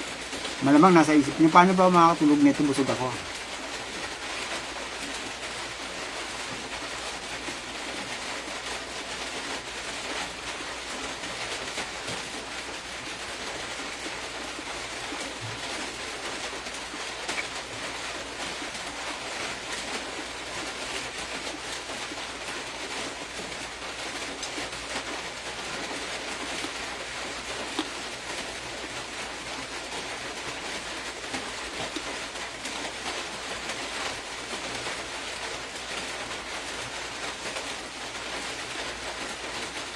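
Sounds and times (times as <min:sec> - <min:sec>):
steady background hiss: 0:00.0 - 0:06.8.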